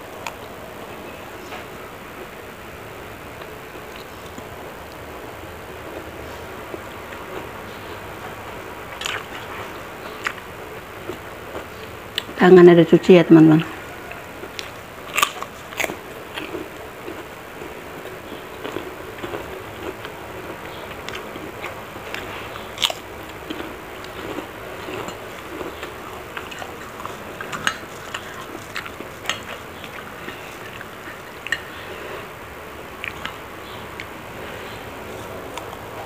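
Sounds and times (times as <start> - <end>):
person chewing crunchy crackers: 8.9 - 12.4, 14.0 - 32.4, 33.0 - 36.0.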